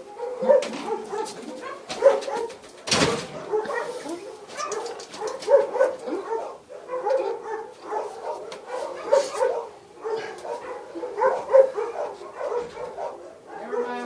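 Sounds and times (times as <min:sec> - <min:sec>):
dog barking: 0:00.0 - 0:14.0
dog whining: 0:03.5 - 0:07.6.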